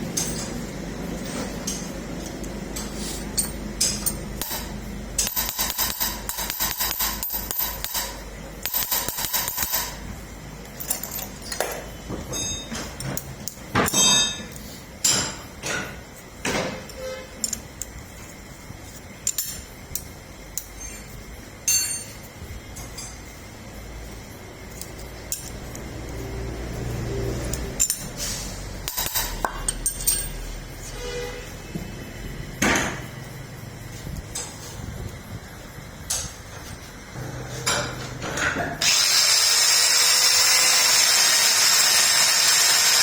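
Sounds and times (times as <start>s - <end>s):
metal tools clinking: 10.8s - 13.3s, 27.5s - 30.6s.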